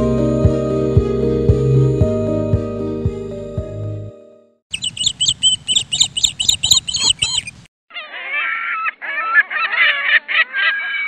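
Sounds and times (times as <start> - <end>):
high-pitched bird chirping: 4.7 - 8.1
lower overlapping bird calls: 4.7 - 11.0.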